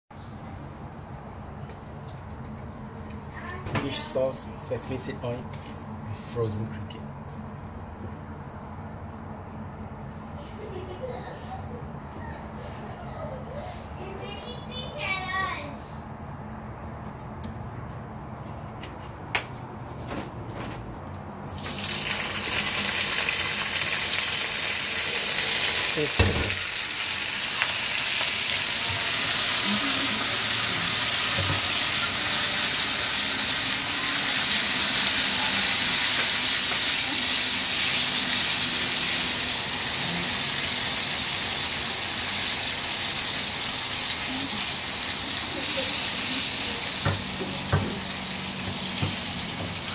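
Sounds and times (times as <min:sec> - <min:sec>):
crickets sizzling in hot oil: 0:21.5 - 0:49.9.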